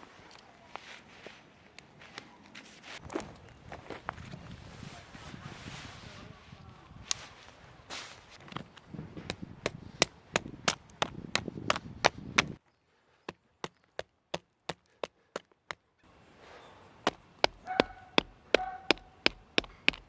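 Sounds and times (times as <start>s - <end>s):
axe chopping wood: 9.2s - 12.6s, 17.0s - 20.0s.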